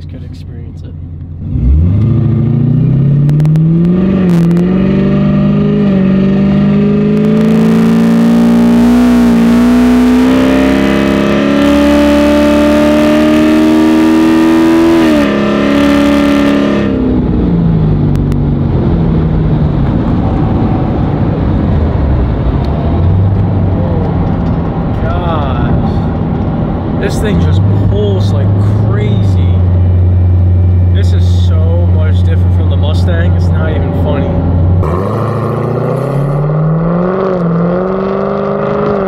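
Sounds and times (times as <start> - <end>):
road noise: 0.0 - 39.0
car engine accelerating hard: 1.1 - 39.0.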